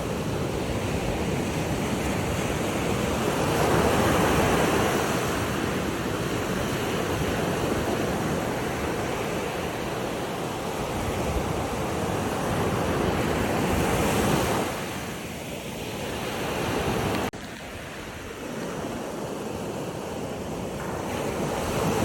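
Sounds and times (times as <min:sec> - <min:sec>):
ocean waves washing in: 0:00.0 - 0:22.0.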